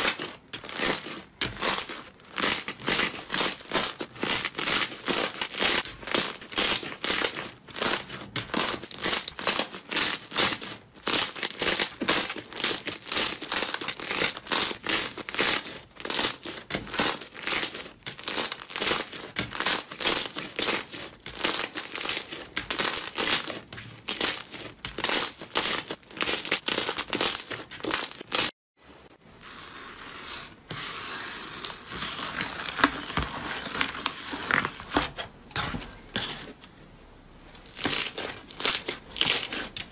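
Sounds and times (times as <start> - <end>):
soft crackling of slime: 0.0 - 28.5, 29.2 - 36.6, 37.4 - 39.9.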